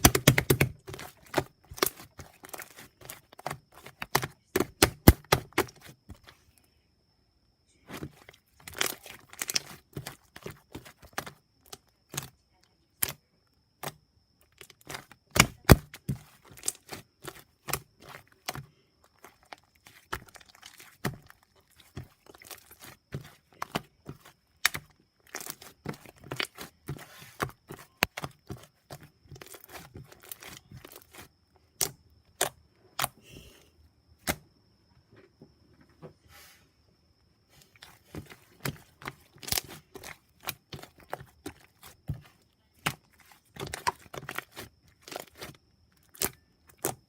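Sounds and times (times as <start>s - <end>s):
slime clicking and popping: 0.0s - 2.0s
slime squishing: 0.0s - 6.5s, 7.8s - 12.4s, 13.8s - 33.2s, 37.5s - 47.0s.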